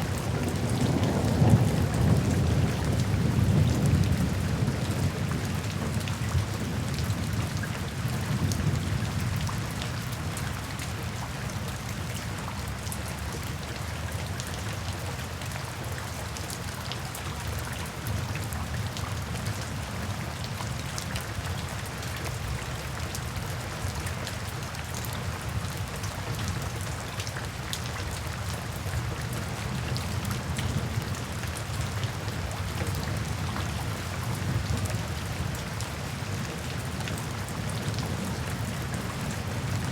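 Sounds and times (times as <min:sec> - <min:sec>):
steady rain falling: 0:00.0 - 0:39.9
low thunder rumble: 0:00.1 - 0:06.0.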